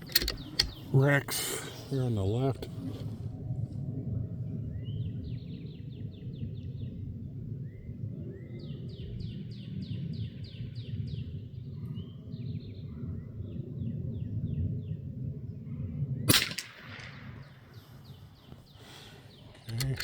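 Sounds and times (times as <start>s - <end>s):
songbird singing: 0.0s - 3.1s, 4.2s - 16.3s, 17.1s - 20.0s
low outdoor rumble: 0.0s - 9.3s.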